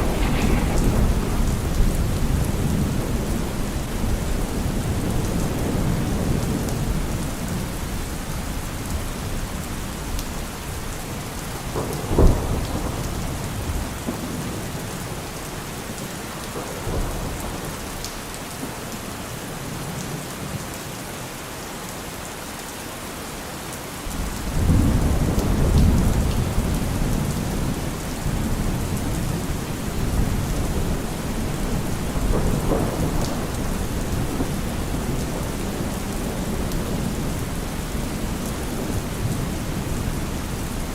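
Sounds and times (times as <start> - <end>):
sharp thunderclap: 0.0 - 6.0, 28.2 - 37.3
low rumble of thunder: 0.0 - 18.9, 24.1 - 40.9
heavy rain: 0.0 - 40.9.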